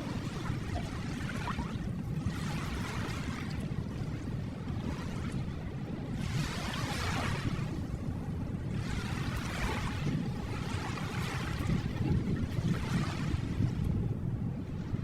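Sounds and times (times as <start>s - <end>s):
wave washing in: 4.8s - 14.0s.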